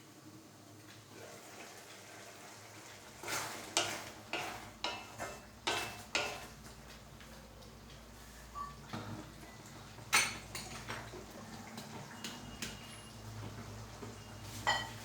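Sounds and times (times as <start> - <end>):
spoon scraping a pan: 3.1 - 6.8, 14.2 - 15.0.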